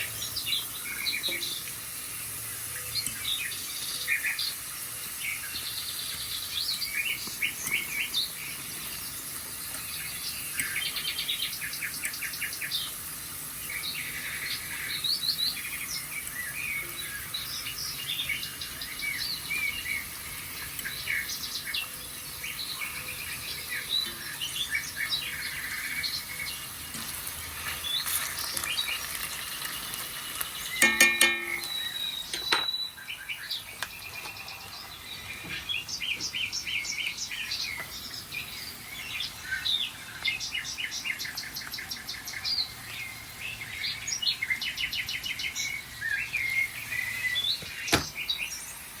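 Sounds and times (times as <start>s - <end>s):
songbirds chirping over tv speakers: 0.0s - 49.0s
rapid bird trill: 29.8s - 49.0s.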